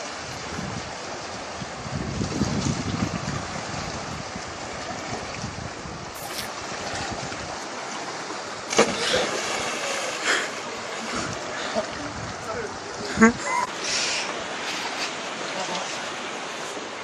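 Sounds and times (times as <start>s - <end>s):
sea waves washing: 0.0s - 17.0s
wind buffeting microphone: 0.2s - 7.6s, 11.1s - 13.7s.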